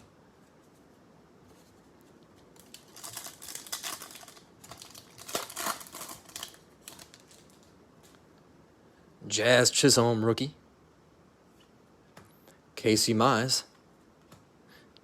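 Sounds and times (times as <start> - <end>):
foil wrapper crinkling and tearing: 2.6 - 7.7.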